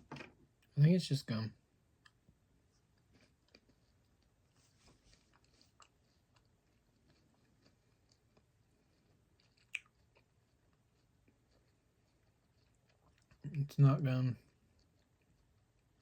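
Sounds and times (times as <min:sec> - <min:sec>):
chewing candy: 0:02.9 - 0:13.6, 0:14.4 - 0:16.0
soft mouth clicks: 0:09.6 - 0:10.0.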